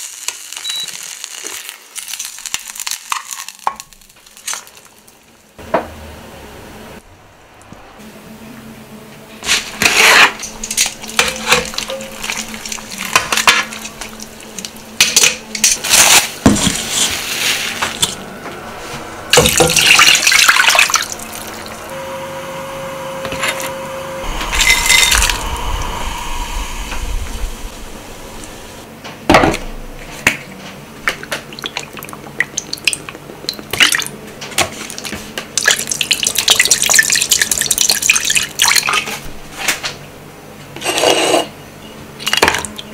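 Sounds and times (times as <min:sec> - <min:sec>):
sauce simmering crackle: 0:00.0 - 0:05.2
metal pots and utensils clattering: 0:09.5 - 0:17.1.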